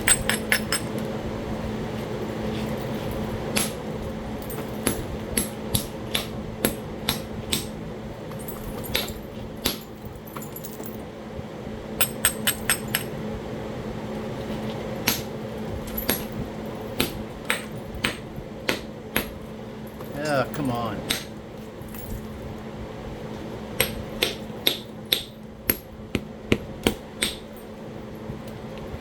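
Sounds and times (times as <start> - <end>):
faint steady hum: 0.0 - 29.0
stone strikes in flintknapping: 23.8 - 27.5.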